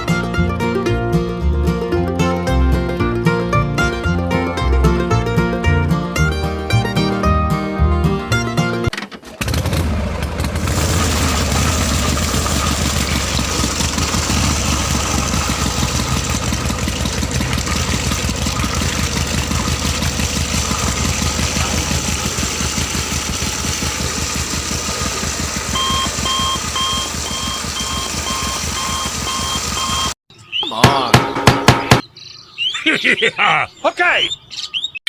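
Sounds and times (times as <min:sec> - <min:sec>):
small engine running: 0:08.0 - 0:30.2
repeating beep: 0:25.8 - 0:30.2.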